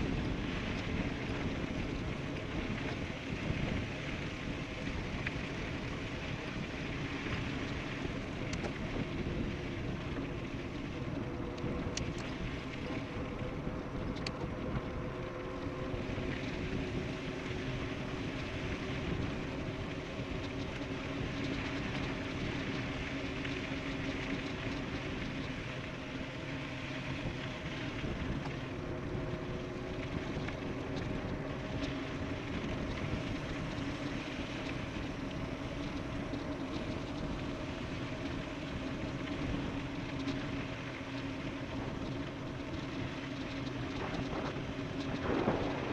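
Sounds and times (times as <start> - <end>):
faint steady hum: 0.0 - 45.9
light ticks: 8.4 - 9.1, 11.5 - 12.4, 14.0 - 14.5.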